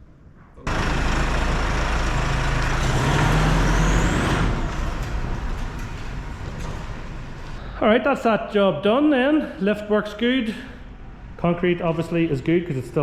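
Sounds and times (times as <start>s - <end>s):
hydraulic power unit humming: 0.6s - 7.8s.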